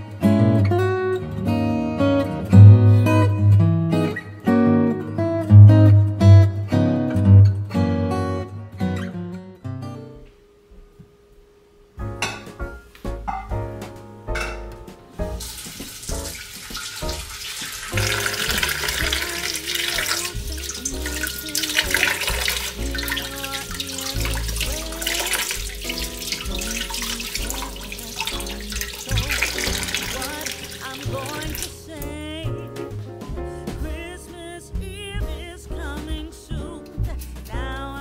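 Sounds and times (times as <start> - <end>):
background music with bass: 0.0 - 9.0, 12.0 - 38.0
water splashing into steel bowl: 15.4 - 31.7.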